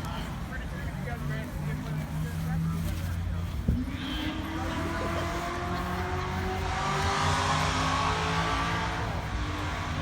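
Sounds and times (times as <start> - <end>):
car engine accelerating: 3.4 - 10.0.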